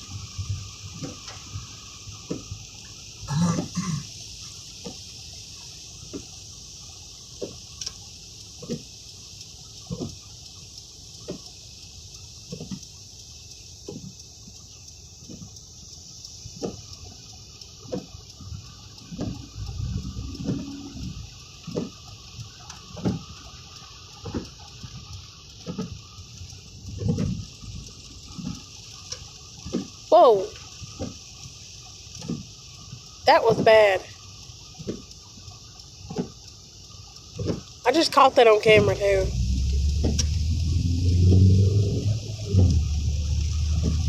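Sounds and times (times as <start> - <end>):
heavy rain falling: 0.0 - 16.0, 16.6 - 44.0
low rumble: 19.0 - 21.3, 38.4 - 44.0.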